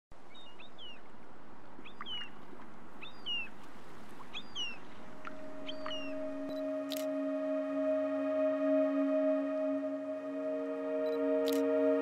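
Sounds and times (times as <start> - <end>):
low held tone: 5.2 - 12.0.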